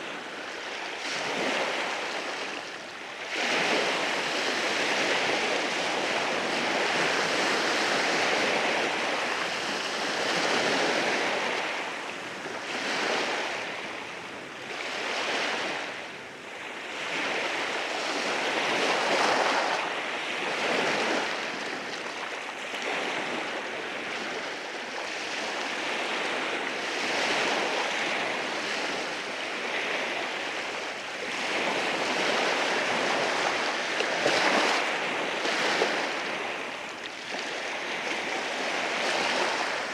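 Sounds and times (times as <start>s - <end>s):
ocean waves breaking over rocks: 17.0s - 39.9s.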